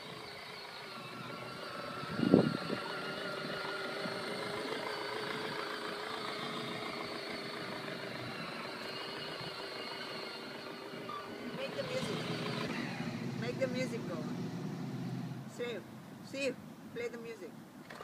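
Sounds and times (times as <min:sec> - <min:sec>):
electric toy car motor whining: 0:00.0 - 0:13.4.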